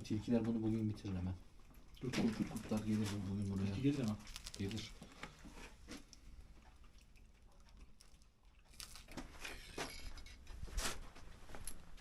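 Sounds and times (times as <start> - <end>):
crinkly rustles: 2.0 - 6.8, 7.7 - 12.0.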